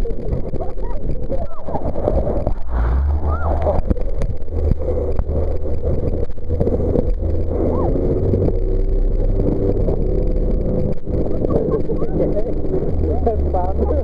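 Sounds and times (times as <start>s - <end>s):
jet boat engine rumbling: 0.0s - 14.0s.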